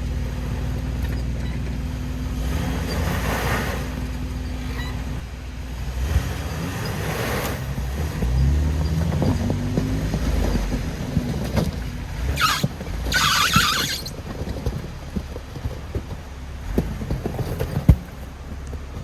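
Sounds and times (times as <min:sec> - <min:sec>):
vehicle engine running low: 0:00.0 - 0:19.0
knocks and clunks from suspension: 0:06.1 - 0:19.0.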